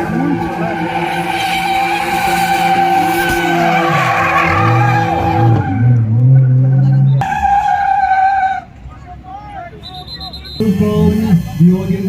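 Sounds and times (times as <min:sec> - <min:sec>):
tyres squealing: 0:00.0 - 0:08.7
car engine revving: 0:00.0 - 0:08.8.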